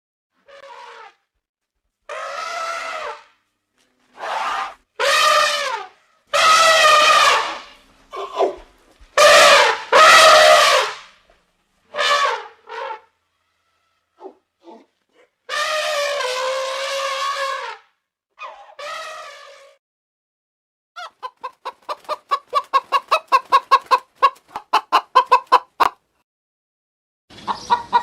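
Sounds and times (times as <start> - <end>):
elephant trumpeting: 2.1 - 3.4, 4.1 - 8.6, 9.2 - 11.0, 11.9 - 14.8, 15.5 - 17.8.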